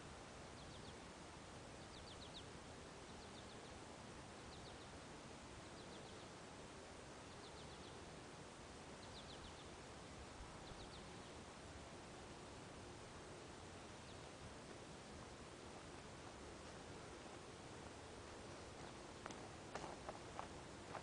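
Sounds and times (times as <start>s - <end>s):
faint outdoor ambience: 0.0s - 21.0s
small bird chirping: 1.8s - 3.8s, 4.4s - 5.0s, 5.6s - 6.4s, 7.2s - 8.1s, 9.0s - 9.8s, 10.5s - 11.4s.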